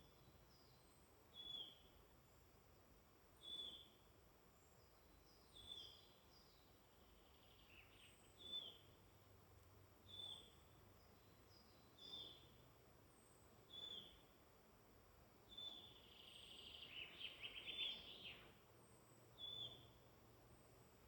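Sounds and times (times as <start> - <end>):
faint high bird calls: 10.1 - 12.6, 13.2 - 14.3, 15.5 - 20.0.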